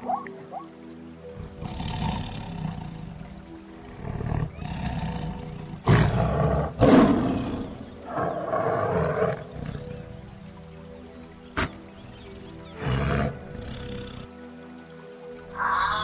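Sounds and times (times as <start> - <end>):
soft background music: 0.0 - 16.0
lion roaring: 1.4 - 10.2, 12.8 - 14.3.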